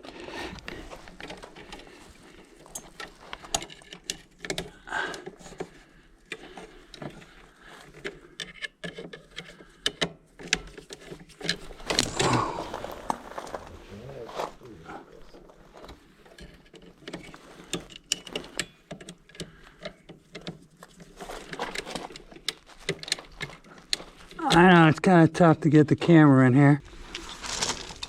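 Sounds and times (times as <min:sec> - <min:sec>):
hand work in electrical panel: 0:15.9 - 0:24.0.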